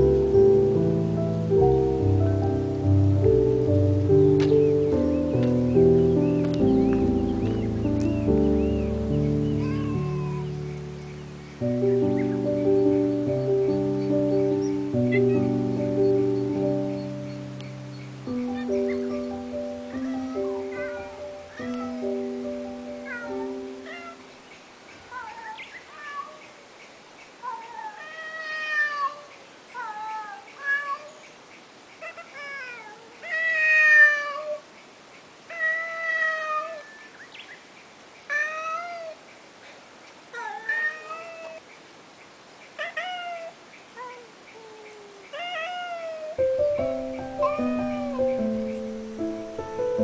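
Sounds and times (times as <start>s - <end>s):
cat meowing: 9.5s - 10.6s, 15.0s - 15.5s, 18.6s - 22.3s, 22.9s - 24.3s, 25.1s - 26.4s, 27.4s - 31.2s, 32.0s - 34.6s, 35.5s - 37.2s, 38.3s - 39.2s, 40.3s - 41.6s, 42.8s - 48.7s.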